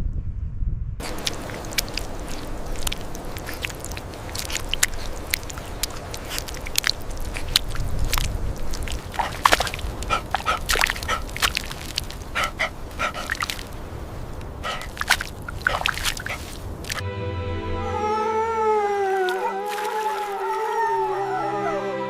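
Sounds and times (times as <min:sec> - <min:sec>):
low rumble: 0:00.0 - 0:01.0
puppies squeaking and whimpering: 0:19.1 - 0:21.9.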